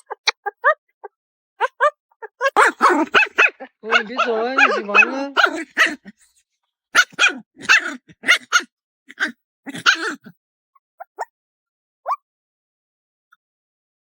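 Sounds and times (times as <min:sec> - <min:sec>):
puppy whining: 0:00.0 - 0:06.3, 0:07.0 - 0:10.4
puppy yapping: 0:00.0 - 0:06.3, 0:07.0 - 0:10.4.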